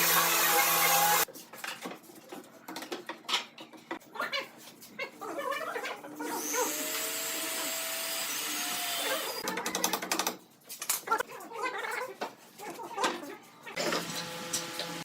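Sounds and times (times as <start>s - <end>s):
power tool running: 0.0s - 1.2s, 6.4s - 9.4s, 13.8s - 15.0s.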